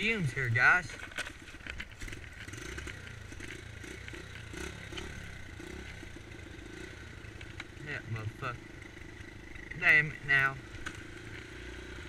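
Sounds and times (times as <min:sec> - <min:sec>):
clicks and scrapes: 0:00.8 - 0:05.2
dirt bike engine running unevenly: 0:00.9 - 0:12.0.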